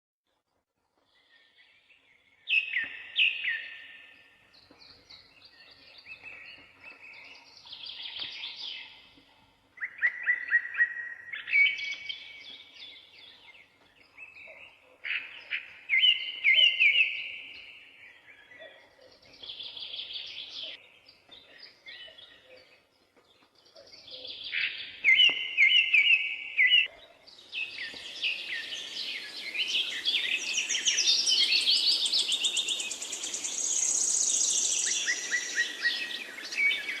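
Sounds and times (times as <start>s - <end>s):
songbird singing trills: 9.8s - 37.0s.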